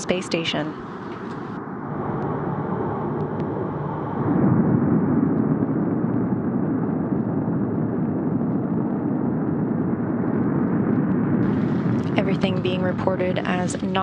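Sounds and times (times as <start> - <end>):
rocket engines rumbling: 0.0 - 14.0.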